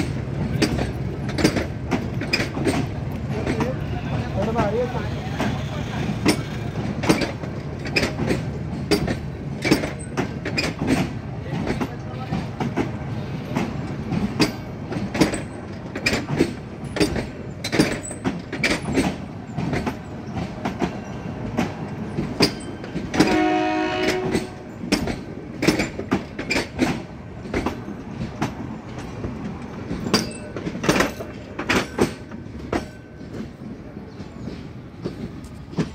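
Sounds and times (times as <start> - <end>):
train wheels clickety-clack: 0.0 - 35.9
train horn: 23.1 - 24.8.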